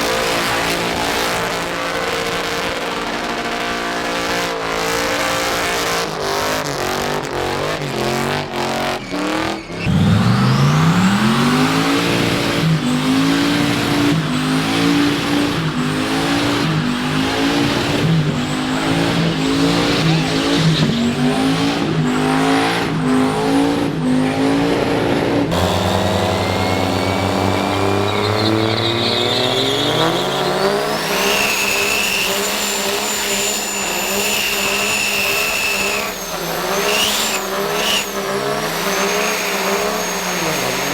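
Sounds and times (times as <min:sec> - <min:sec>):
diesel truck engine revving: 0:00.0 - 0:40.9
engine winding up: 0:09.8 - 0:15.6, 0:25.5 - 0:40.9
high whine: 0:25.5 - 0:40.9.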